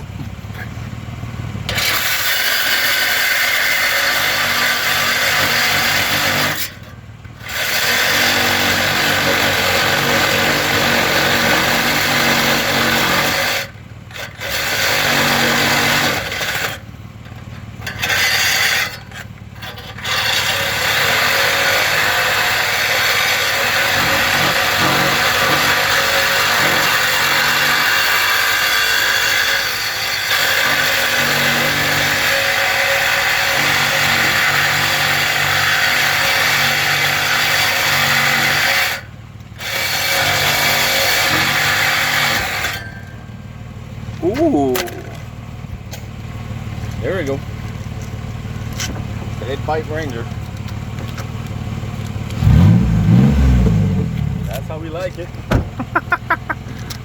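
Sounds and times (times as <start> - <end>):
power tool cutting steel pipe: 1.7 - 43.4, 52.3 - 57.0.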